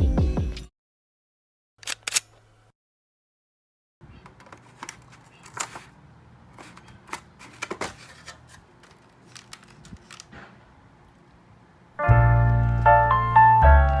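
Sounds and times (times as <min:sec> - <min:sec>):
objects clicking and scraping: 0:04.2 - 0:06.0, 0:06.6 - 0:10.5.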